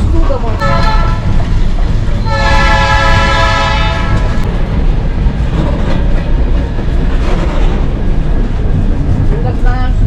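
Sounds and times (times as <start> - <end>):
moving train rumble: 0.0 - 10.0
train horn chord: 0.6 - 1.5, 2.2 - 4.4.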